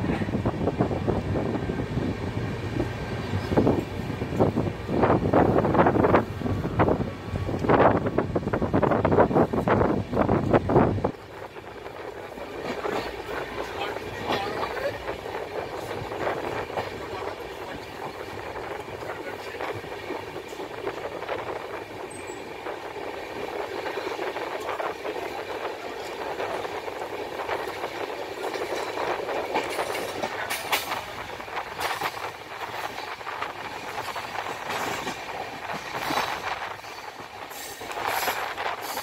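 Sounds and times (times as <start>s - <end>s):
train coach rumbling: 0.0s - 39.0s
wheels clacking over rail joints: 8.8s - 39.0s.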